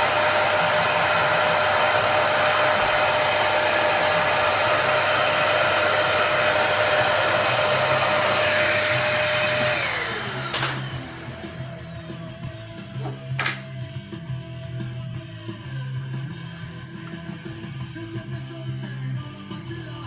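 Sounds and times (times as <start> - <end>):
electric blower motor whining: 0.0 - 13.7.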